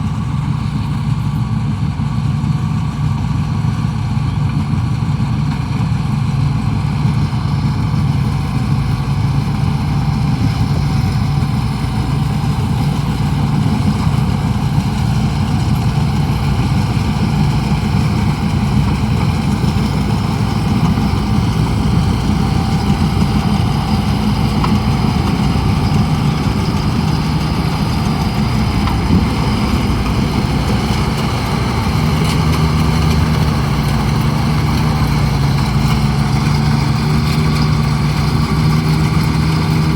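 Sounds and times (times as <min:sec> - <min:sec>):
harvester engine running: 0:00.0 - 0:39.9.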